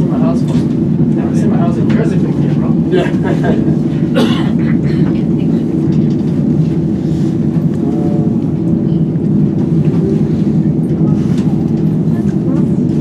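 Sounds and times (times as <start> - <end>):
cable car cabin rumble: 0.0 - 13.0.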